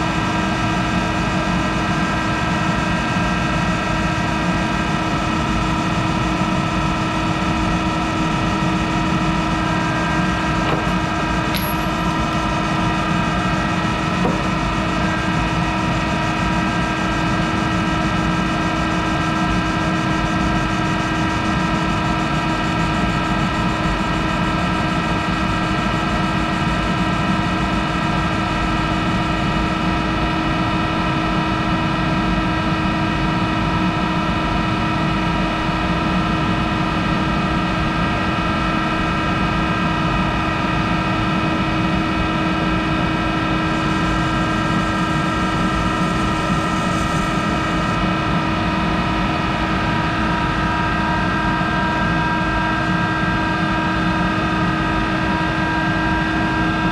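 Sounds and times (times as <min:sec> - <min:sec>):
lathe running with whine: 0:43.6 - 0:48.0.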